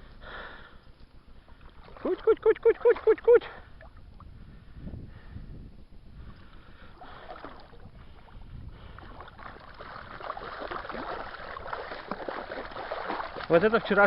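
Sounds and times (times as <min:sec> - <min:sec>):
water splashing and lapping: 0:01.0 - 0:04.3, 0:06.2 - 0:14.0.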